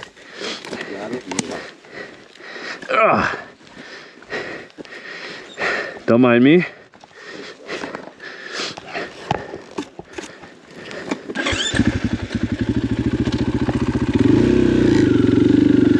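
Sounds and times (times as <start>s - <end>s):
dirt bike engine starting: 10.9s - 15.9s
dirt bike engine idling: 11.0s - 15.9s.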